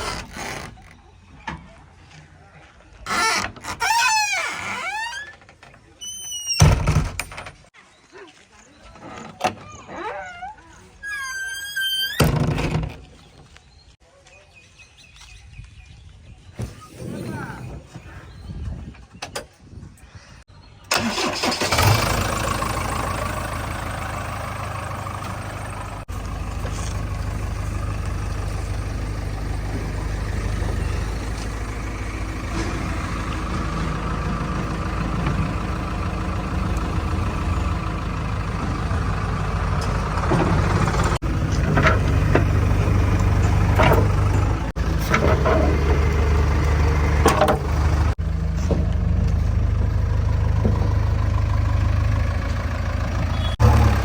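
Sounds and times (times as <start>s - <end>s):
diesel engine starting and running: 20.8s - 54.0s.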